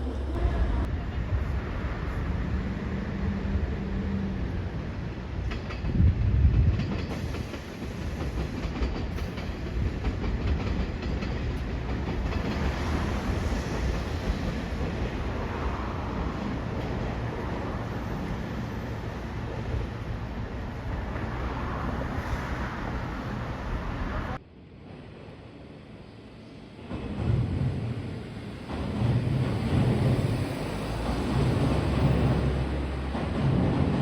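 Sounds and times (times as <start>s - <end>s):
train rumbling on rails: 0.0s - 34.0s
wheels clacking over rail joints: 5.2s - 15.4s.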